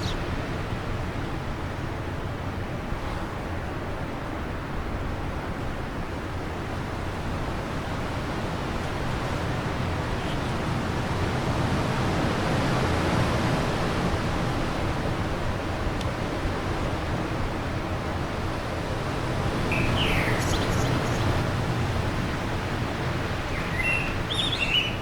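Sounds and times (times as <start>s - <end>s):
wind blowing: 6.8s - 25.0s.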